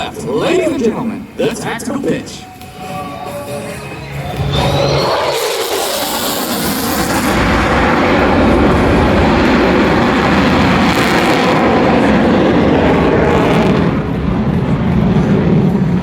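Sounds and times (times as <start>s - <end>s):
fighter jet engines roaring: 0.0s - 16.0s.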